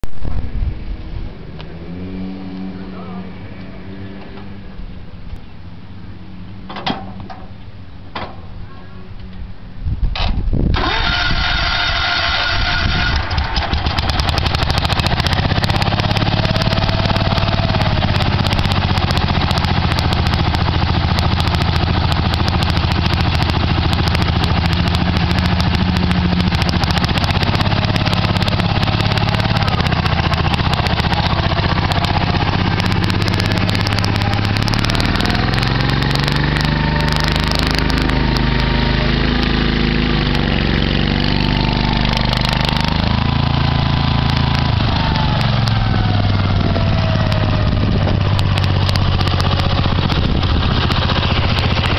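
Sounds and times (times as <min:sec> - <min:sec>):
high engine whine: 0:00.0 - 0:51.9
garden tractor engine running: 0:10.7 - 0:51.9.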